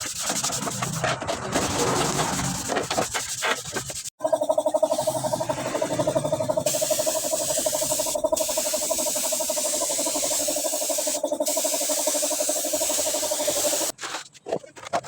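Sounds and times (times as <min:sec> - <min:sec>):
small motor pulsing hum: 0:04.2 - 0:13.9
hiss: 0:06.6 - 0:13.9.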